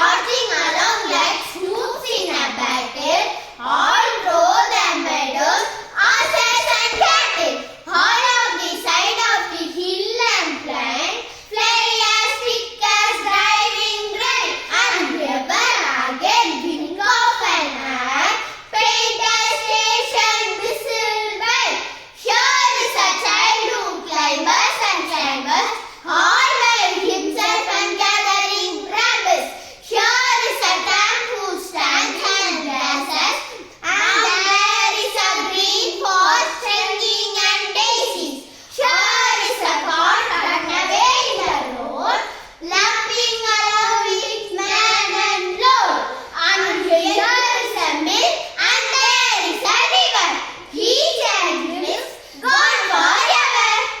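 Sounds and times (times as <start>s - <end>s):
child singing: 0.0s - 54.0s
children singing: 3.6s - 9.6s, 51.0s - 54.0s.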